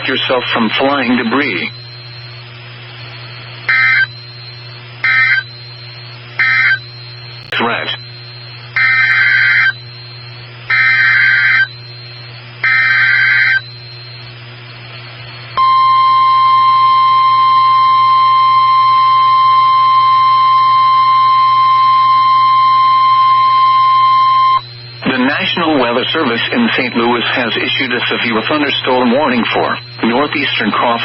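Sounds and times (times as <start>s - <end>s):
low receiver hum: 0.0s - 31.0s
steady warning alarm tone: 0.0s - 31.0s
screeching data bursts: 3.7s - 4.3s, 5.0s - 6.9s, 8.8s - 9.9s, 10.7s - 13.6s, 22.6s - 31.0s.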